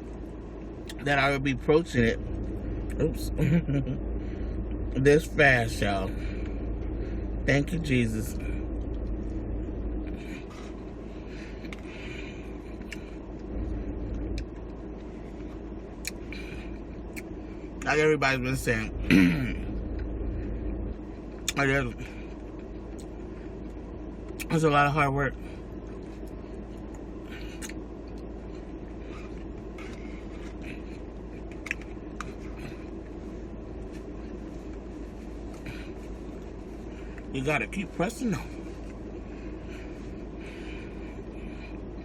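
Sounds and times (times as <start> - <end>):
low background rumble: 0.0 - 42.0
quiet eating sounds: 25.4 - 37.3.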